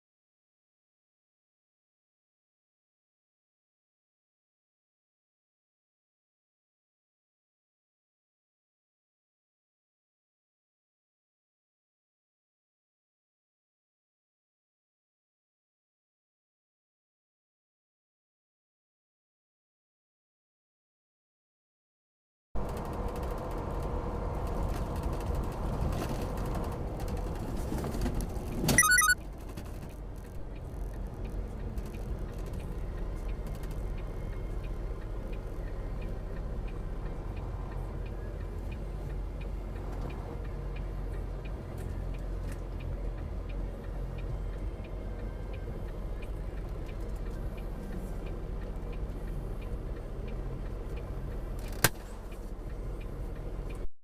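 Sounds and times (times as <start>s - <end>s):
vehicle rumble: 22.6s - 53.9s
warbling beep: 28.8s - 29.2s.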